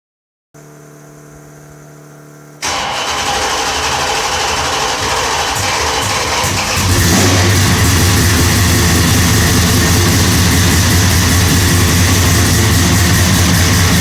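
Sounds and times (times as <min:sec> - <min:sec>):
faint steady hum: 0:00.6 - 0:02.6
car engine cold-starting: 0:02.6 - 0:14.0.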